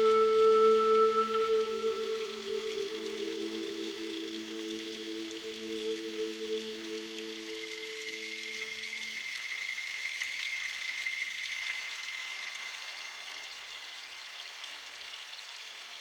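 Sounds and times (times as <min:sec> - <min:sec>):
low held music tones: 0:00.0 - 0:09.4
faint high steady tone: 0:00.0 - 0:12.6
rain falling in a forest: 0:00.0 - 0:16.0.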